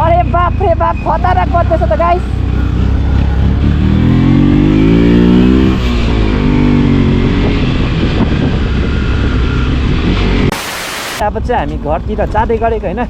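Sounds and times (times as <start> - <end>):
motorcycle engine accelerating: 0.6 - 10.6
rushing noise: 10.2 - 11.2.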